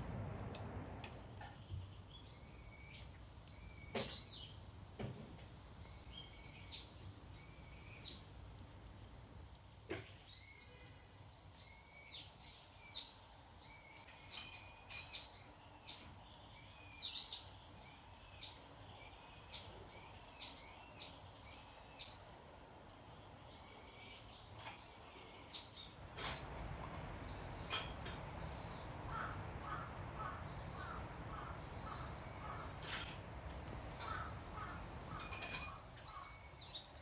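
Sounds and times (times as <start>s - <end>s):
bird calling: 24.8s - 36.9s.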